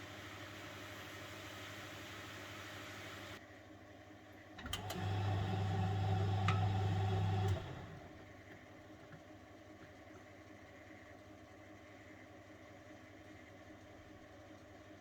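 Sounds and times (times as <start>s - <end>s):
steady hiss: 0.0s - 3.4s
washing machine drum motor humming: 0.0s - 3.4s, 4.6s - 9.3s.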